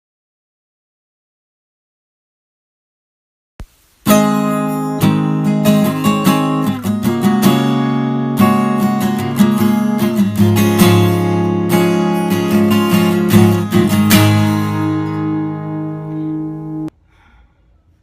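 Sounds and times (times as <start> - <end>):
acoustic guitar strumming: 4.0 - 16.9.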